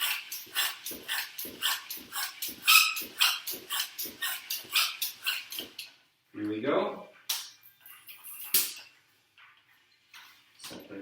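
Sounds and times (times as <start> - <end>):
bicycle pump hissing: 0.0 - 5.9.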